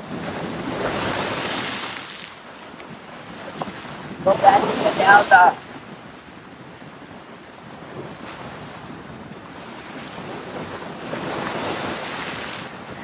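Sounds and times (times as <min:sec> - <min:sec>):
rushing outdoor noise: 0:04.2 - 0:05.8.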